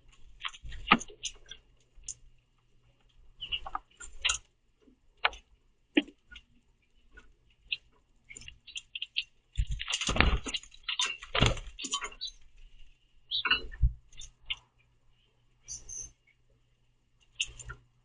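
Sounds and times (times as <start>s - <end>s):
harsh bird calls: 7.6s - 12.4s, 13.3s - 14.7s, 15.6s - 16.4s.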